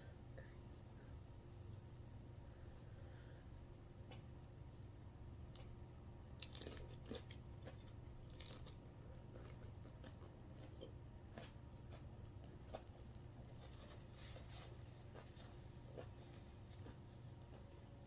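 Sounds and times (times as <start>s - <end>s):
person chewing: 6.4s - 17.7s
small crunches and mouth clicks: 6.4s - 17.7s.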